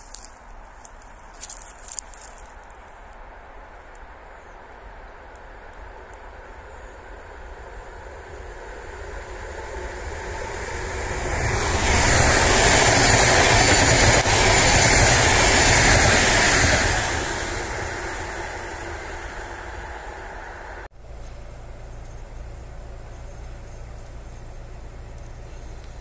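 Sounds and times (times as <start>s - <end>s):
train passing at speed: 3.3s - 25.2s
low rumble: 6.1s - 26.0s.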